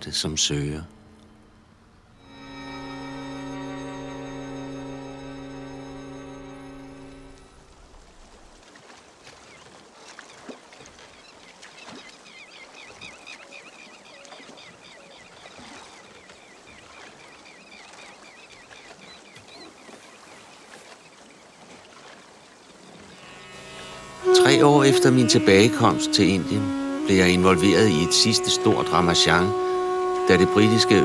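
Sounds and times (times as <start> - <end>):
birds chirping: 11.1 - 31.0.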